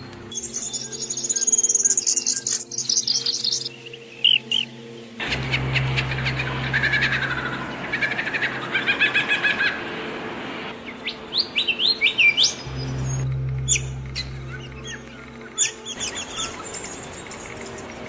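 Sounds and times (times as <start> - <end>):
songbirds chirping and singing: 0.0 - 9.5, 10.7 - 18.0
low steady hum: 5.2 - 8.9, 12.5 - 18.0.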